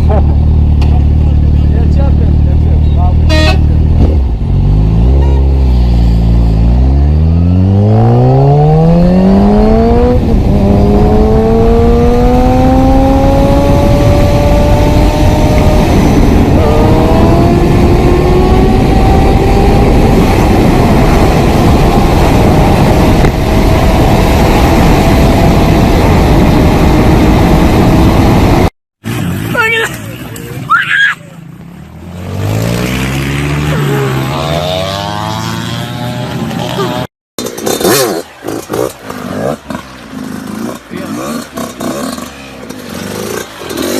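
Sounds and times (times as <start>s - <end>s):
engine accelerating through gears: 4.0s - 28.7s.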